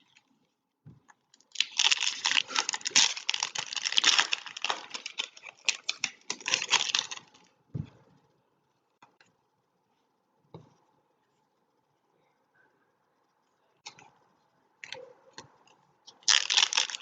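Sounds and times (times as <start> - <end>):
foil wrapper tearing and crinkling: 1.5 - 7.4, 16.2 - 17.0.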